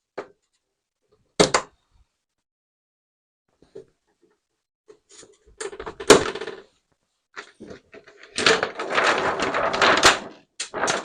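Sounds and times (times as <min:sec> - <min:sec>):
plastic sheet crinkling: 0:07.4 - 0:11.0.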